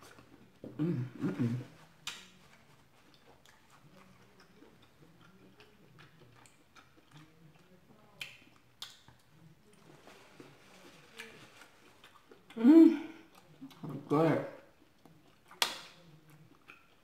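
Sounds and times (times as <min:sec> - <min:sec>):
soft chewing: 0:00.0 - 0:17.0.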